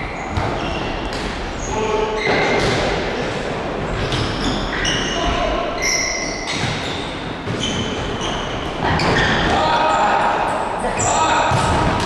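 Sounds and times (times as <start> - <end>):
din of play in hall: 0.0 - 12.0
shoe squeaks: 1.6 - 2.7, 3.9 - 9.5.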